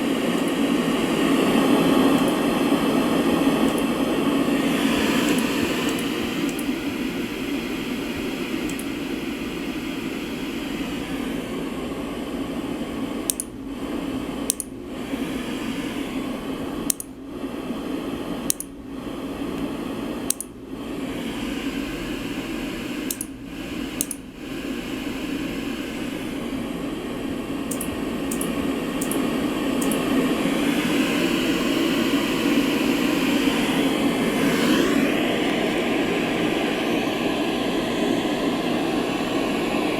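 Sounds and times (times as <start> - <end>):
white noise machine: 0.0 - 39.9
faint clicks: 8.7 - 8.9, 13.3 - 13.5, 27.7 - 29.2.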